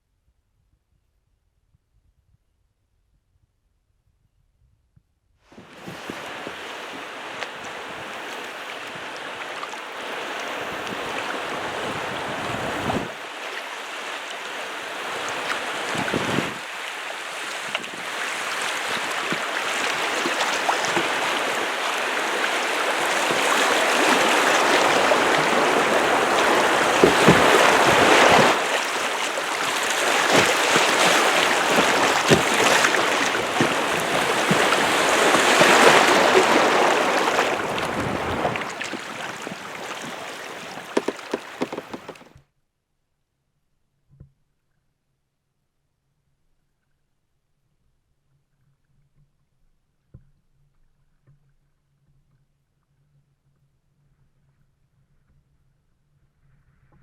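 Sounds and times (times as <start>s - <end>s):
rushing river water: 5.6s - 42.3s.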